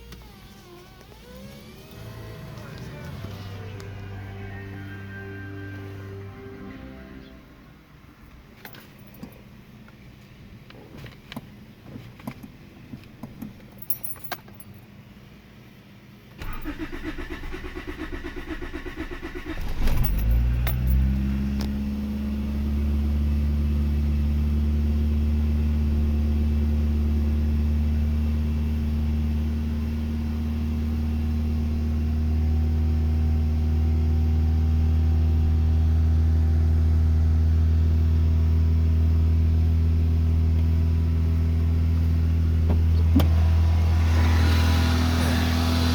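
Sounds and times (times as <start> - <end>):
car engine cranking: 0.0 - 4.4, 16.4 - 22.4
keys jingling: 13.5 - 14.8, 19.7 - 21.1
car engine fast idle: 16.4 - 26.4.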